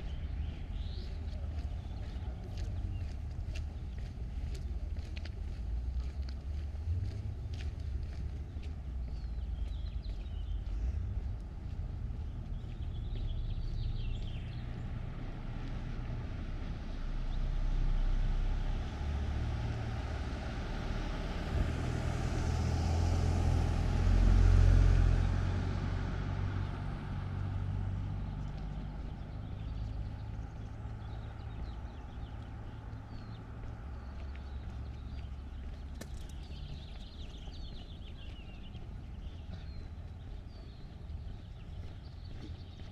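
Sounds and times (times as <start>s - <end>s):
car driving past: 9.4s - 42.9s.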